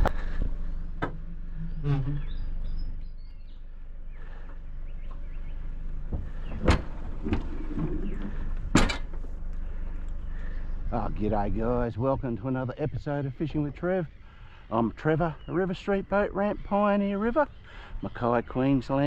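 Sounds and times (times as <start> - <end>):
low engine hum: 0.0 - 19.0
faint bird chirps: 1.2 - 6.7.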